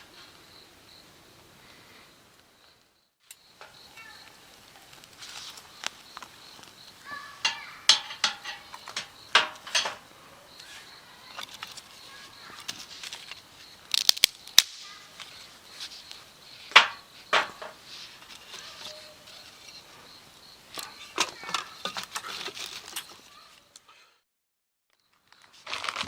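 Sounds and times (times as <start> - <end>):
sharp clicks and knocks: 7.4 - 10.0, 16.7 - 17.8.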